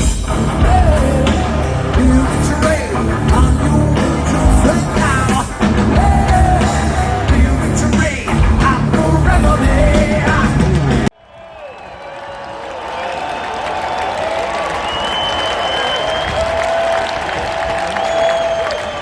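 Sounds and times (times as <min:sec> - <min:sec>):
loud rock music with singing: 0:00.0 - 0:11.1.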